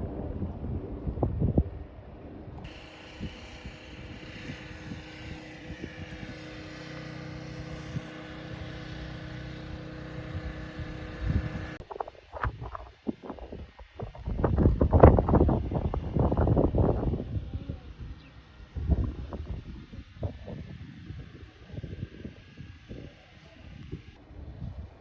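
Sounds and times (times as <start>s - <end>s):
wind noise: 0.0s - 25.0s
electric train running: 2.6s - 11.8s
steady whining tones: 2.6s - 11.8s.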